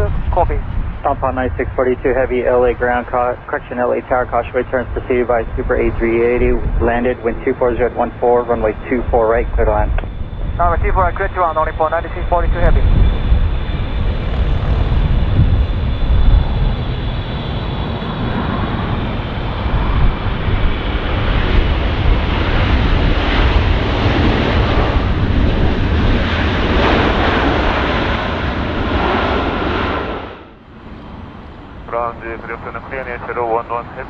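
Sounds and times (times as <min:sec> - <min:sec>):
faint high whine: 0:00.0 - 0:14.8, 0:30.5 - 0:34.0
jet engines roaring: 0:00.0 - 0:34.0.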